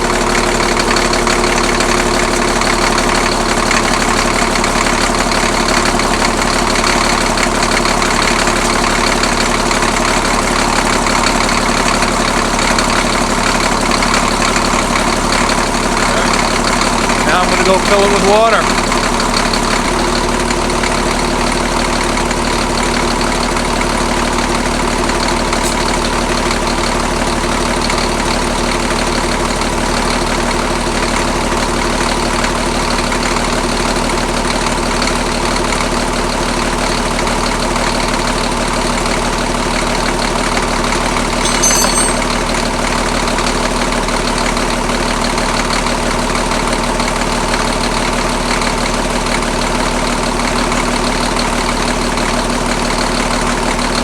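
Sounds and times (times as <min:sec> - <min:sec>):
diesel engine idling: 0:00.0 - 0:54.0
high metallic clink: 0:41.4 - 0:42.5.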